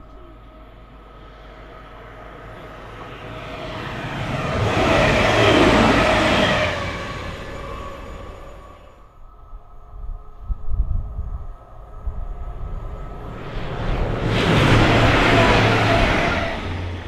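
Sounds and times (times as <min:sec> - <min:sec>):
diesel train passing at speed: 0:00.0 - 0:17.0.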